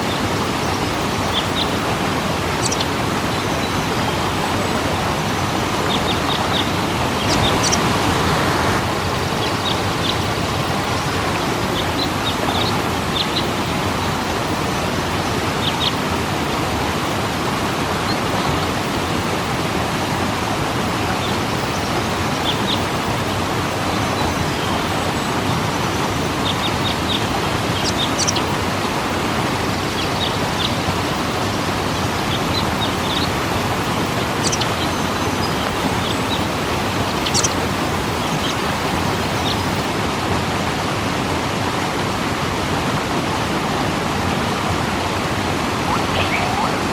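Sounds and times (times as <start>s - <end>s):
waterfall splashing: 0.0s - 44.2s, 45.5s - 46.9s
high bird chirps: 2.6s - 2.9s, 37.1s - 37.6s, 45.9s - 46.9s.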